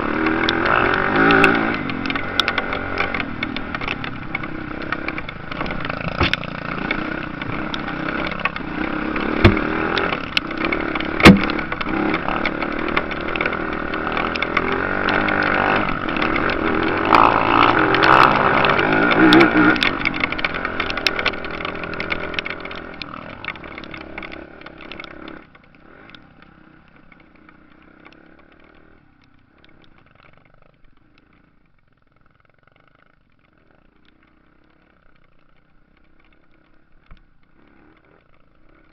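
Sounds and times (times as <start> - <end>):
motorcycle engines revving: 0.0 - 38.9
sharp knocks: 3.8 - 6.6, 9.3 - 10.2, 10.9 - 12.0.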